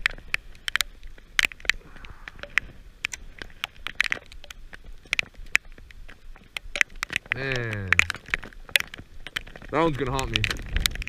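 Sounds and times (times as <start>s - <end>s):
raindrops ticking on camera: 0.0s - 11.0s
faint low rumble: 1.7s - 3.4s.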